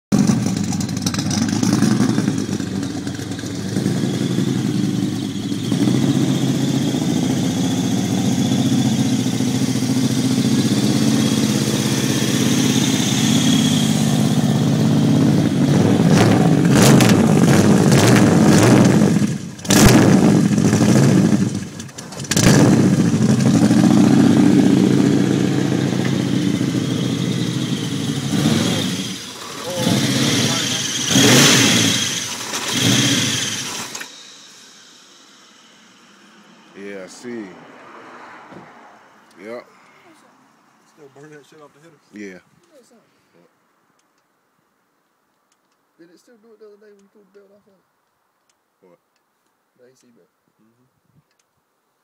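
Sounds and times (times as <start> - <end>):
car engine idling and revving: 0.1 - 39.6.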